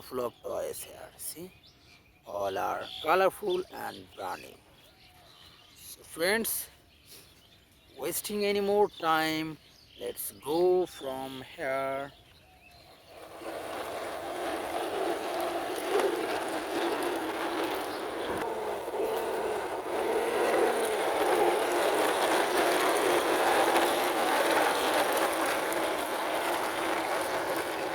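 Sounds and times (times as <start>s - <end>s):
toy truck wheels rolling: 12.8s - 27.9s.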